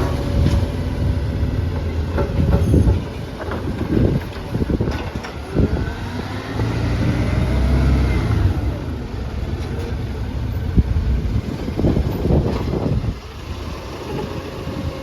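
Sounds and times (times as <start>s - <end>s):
garbage truck engine rumbling: 0.0s - 15.0s.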